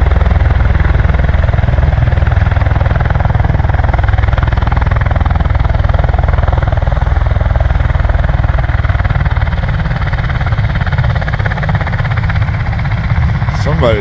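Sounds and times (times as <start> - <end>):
aircraft rotors beating: 10.7 - 14.0.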